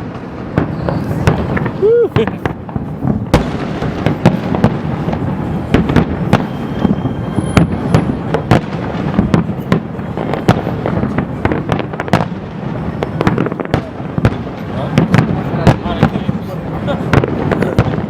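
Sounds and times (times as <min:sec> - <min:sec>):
fireworks bangs and crackles: 0:00.0 - 0:18.0
fireworks rumbling: 0:00.0 - 0:18.0.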